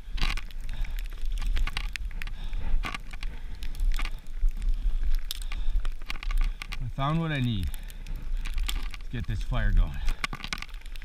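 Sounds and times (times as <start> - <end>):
wind buffeting microphone: 0.0 - 11.0
footsteps crunching in snow: 5.4 - 10.4.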